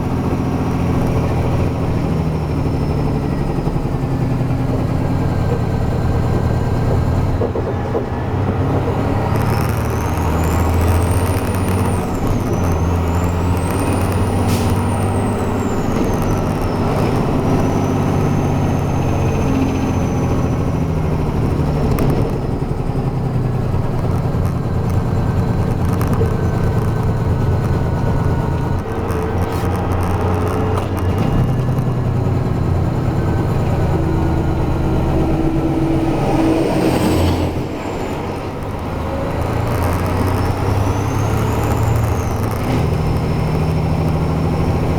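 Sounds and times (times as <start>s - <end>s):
truck diesel engine running: 0.0s - 44.9s.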